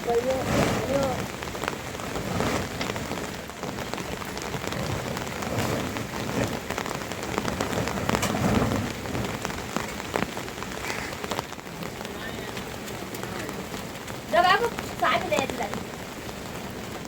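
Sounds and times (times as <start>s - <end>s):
rain dripping and pattering: 0.0s - 17.0s.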